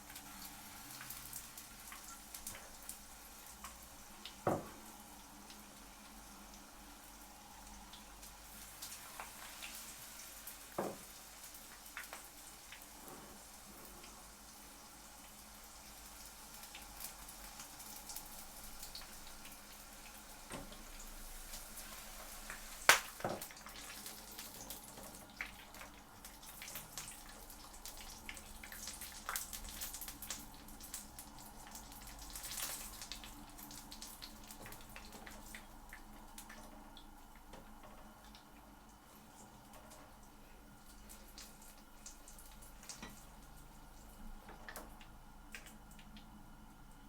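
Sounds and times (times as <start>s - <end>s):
food sizzling in hot oil: 0.0s - 37.3s.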